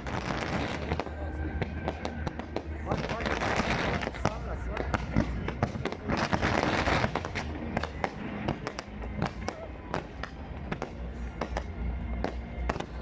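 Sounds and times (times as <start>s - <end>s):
fireworks bangs and crackles: 0.0s - 13.0s
low rumble: 0.0s - 13.0s
music playing: 0.0s - 13.0s.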